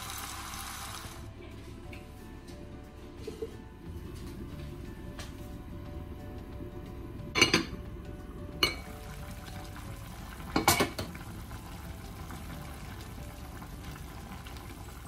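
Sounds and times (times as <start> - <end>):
steady low hum: 1.2 - 10.6
lid and spoon clinking on dish: 10.6 - 11.1.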